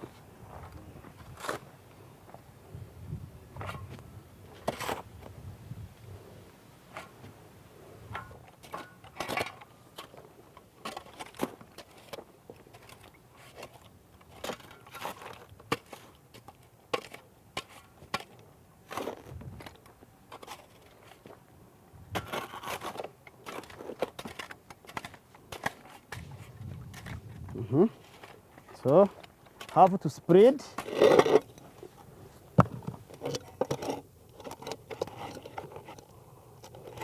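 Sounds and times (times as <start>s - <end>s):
gritty scrapes of sand mix: 10.9s - 37.0s.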